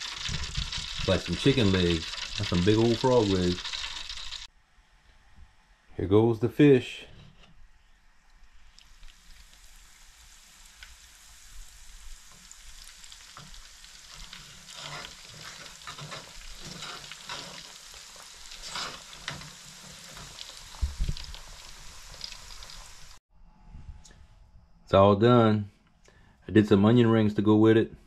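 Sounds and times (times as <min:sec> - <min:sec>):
fish sizzling in hot oil: 0:00.0 - 0:04.5, 0:08.7 - 0:23.2.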